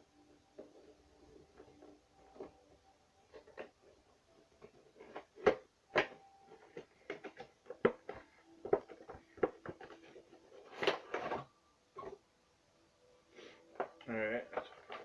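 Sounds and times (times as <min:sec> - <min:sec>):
packaging clicks and taps: 0:04.6 - 0:12.2.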